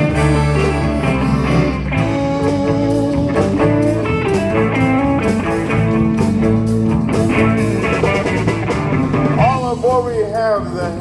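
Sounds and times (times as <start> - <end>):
guitar: 0.0 - 11.0
live band playing: 0.0 - 11.0
steady drum beat: 0.0 - 11.0.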